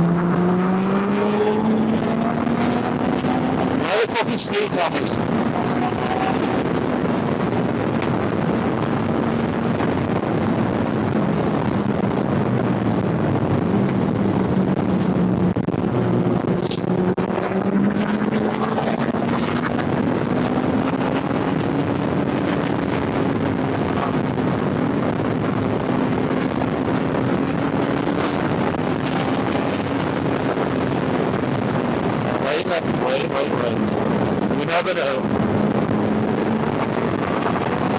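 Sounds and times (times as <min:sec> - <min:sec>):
wind on microphone: 0:00.0 - 0:03.9, 0:04.8 - 0:37.9
motorcycle engine running: 0:05.2 - 0:32.4, 0:35.2 - 0:37.9.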